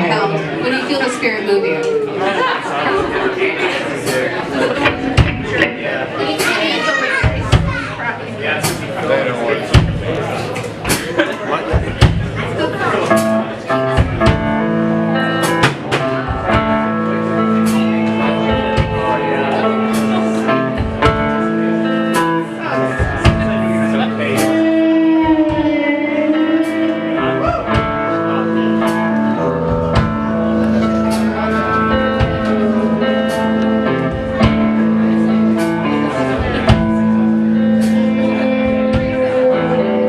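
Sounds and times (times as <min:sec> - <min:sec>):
live rock band playing: 0:00.0 - 0:40.0
sustained keyboard notes: 0:04.0 - 0:40.0
ringing guitar chords: 0:04.5 - 0:08.4, 0:12.6 - 0:40.0
drum kit hits: 0:04.8 - 0:08.0, 0:09.7 - 0:12.5, 0:13.1 - 0:39.8.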